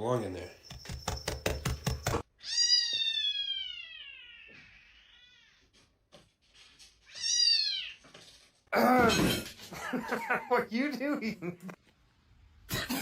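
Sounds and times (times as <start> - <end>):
cat meowing: 2.4 - 5.8.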